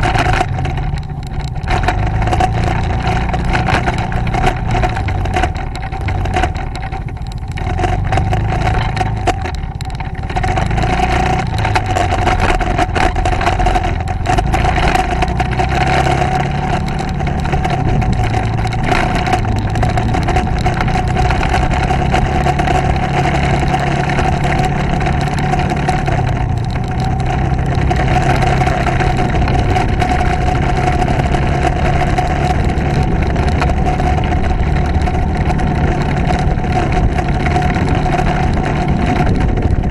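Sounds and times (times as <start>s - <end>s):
motorcycle engine hum: 0.0s - 39.9s
rushing wind noise: 0.0s - 39.9s.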